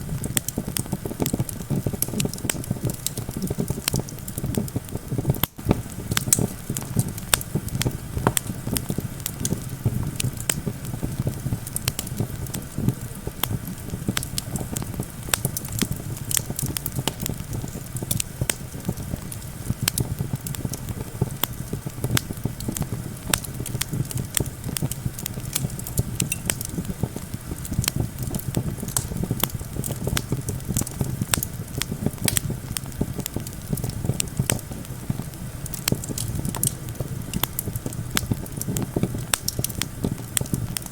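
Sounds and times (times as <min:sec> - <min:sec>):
campfire crackling and popping: 0:00.0 - 0:40.9
low rumble of wind: 0:00.0 - 0:40.9.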